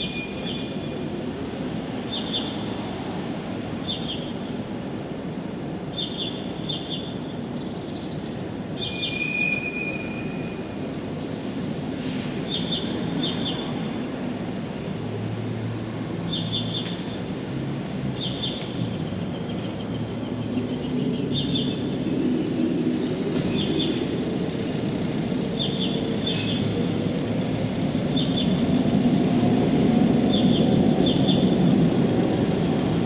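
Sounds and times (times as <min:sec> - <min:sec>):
bird chirping: 0:30.0 - 0:31.6.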